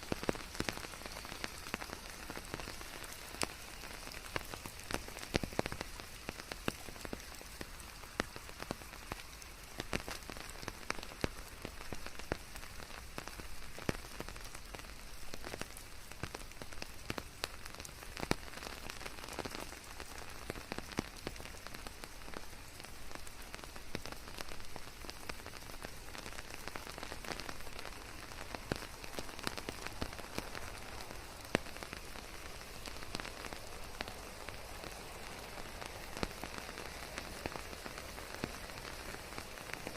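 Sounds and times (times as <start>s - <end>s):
raindrop impacts: 0.0s - 39.9s
steady rain: 0.0s - 39.9s.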